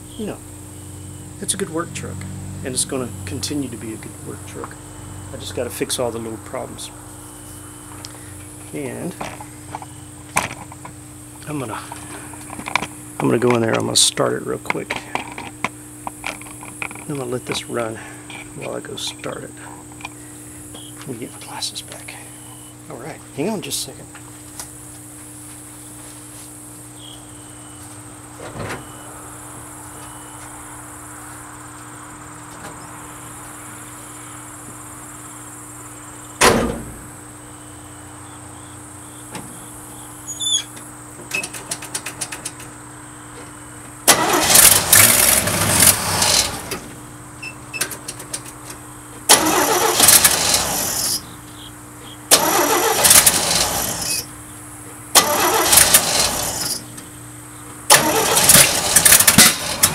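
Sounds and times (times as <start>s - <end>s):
starter cranking engine: 44.1s - 46.8s, 49.3s - 51.2s, 52.3s - 54.3s, 55.1s - 56.8s, 57.9s - 59.9s.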